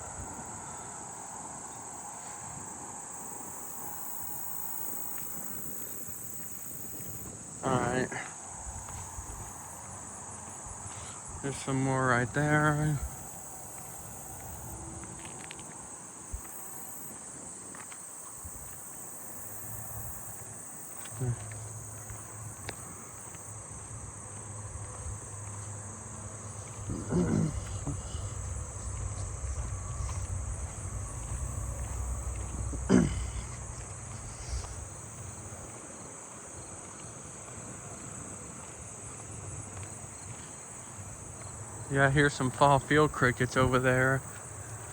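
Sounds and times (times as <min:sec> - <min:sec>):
insects chirping chorus: 0:00.0 - 0:44.9
low rumble: 0:26.5 - 0:35.5.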